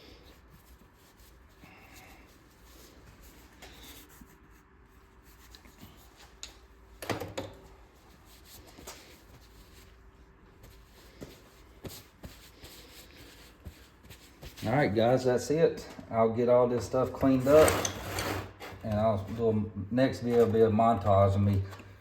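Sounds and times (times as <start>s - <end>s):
metal engine parts scraping: 17.4s - 18.8s.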